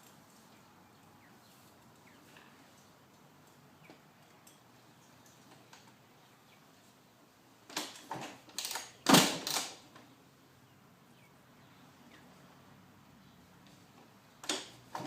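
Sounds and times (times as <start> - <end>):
motorcycle engine kick-start clatters: 7.7 - 10.1, 14.4 - 15.0.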